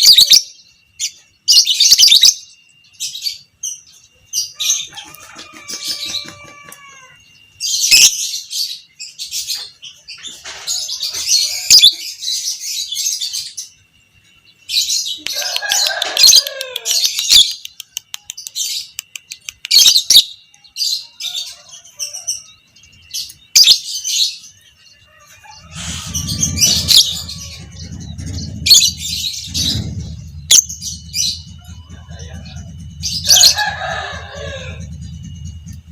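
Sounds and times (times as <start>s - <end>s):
low rumble: 25.5s - 35.9s.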